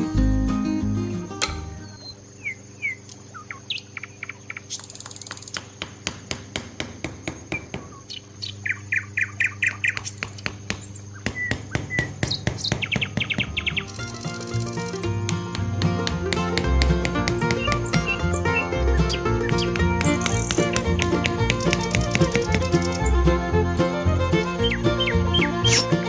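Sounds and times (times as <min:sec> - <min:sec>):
steady low hum: 0:13.0 - 0:26.0
sharp clicks or taps: 0:14.9 - 0:24.6.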